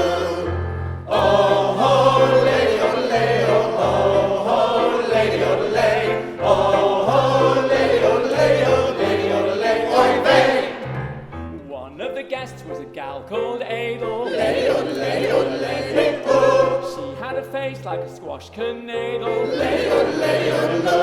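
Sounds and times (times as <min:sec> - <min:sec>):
choir singing: 0:00.0 - 0:11.0, 0:14.0 - 0:17.4, 0:19.0 - 0:21.0
instrumental accompaniment: 0:00.0 - 0:18.1.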